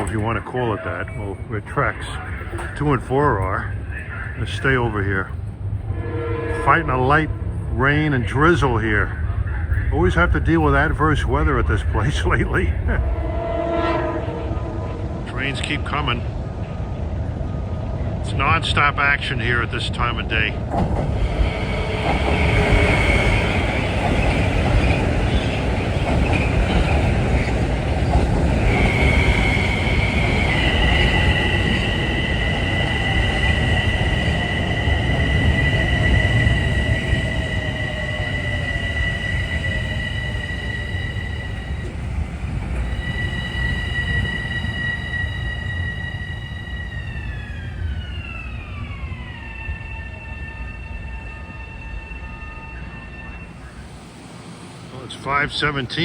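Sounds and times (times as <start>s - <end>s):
train cars rumbling: 0.0s - 56.0s
high-pitched train squealing: 20.1s - 56.0s.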